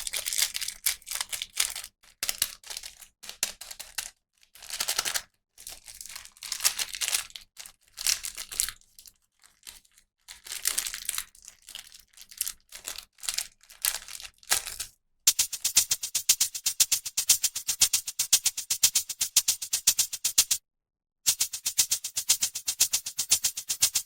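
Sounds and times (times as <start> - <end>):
shaker-like rattling beat: 15.3 - 20.6, 21.3 - 24.0.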